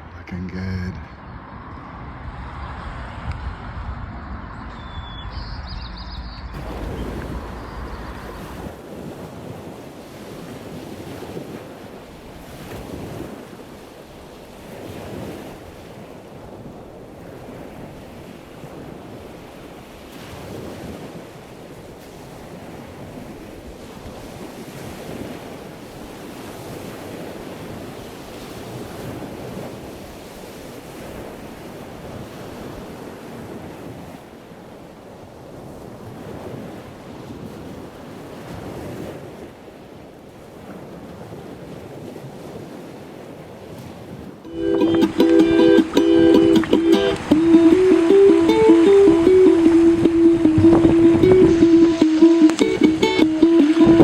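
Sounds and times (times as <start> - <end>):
wind buffeting microphone: 1.2 - 13.6, 46.6 - 54.0
water noise: 6.6 - 10.4, 44.5 - 54.0.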